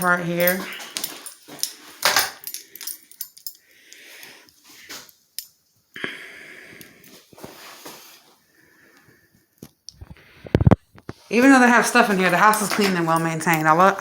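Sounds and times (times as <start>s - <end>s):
handling clicks and knocks: 0.0s - 3.6s, 11.1s - 14.0s
heavy breathing through face mask: 2.6s - 5.1s, 6.0s - 10.6s.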